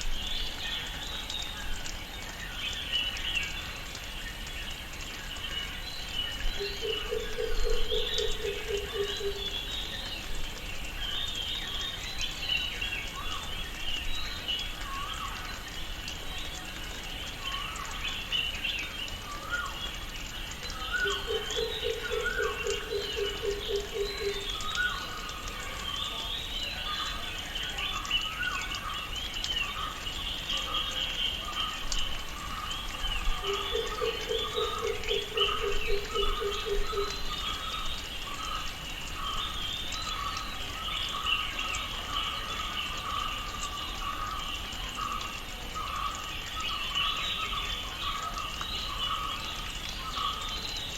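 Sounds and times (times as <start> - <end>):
birds chirping and calling: 6.2 - 10.2, 20.6 - 50.9.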